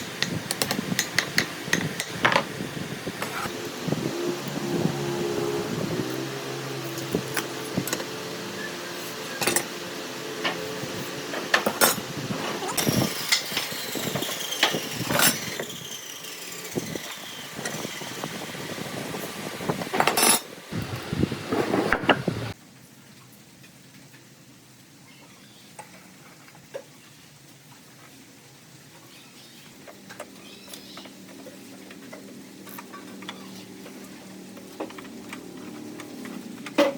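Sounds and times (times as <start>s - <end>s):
tools knocking on wood and metal: 0.2s - 2.5s.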